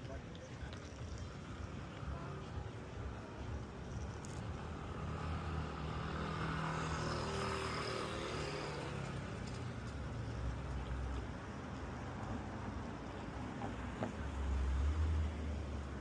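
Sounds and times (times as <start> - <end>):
vehicle passing by: 4.2 - 11.5, 13.4 - 16.0.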